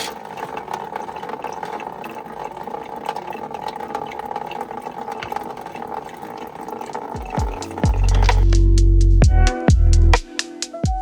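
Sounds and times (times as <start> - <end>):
coolant pouring into container: 0.0 - 8.6
ticks and drips: 0.0 - 8.6.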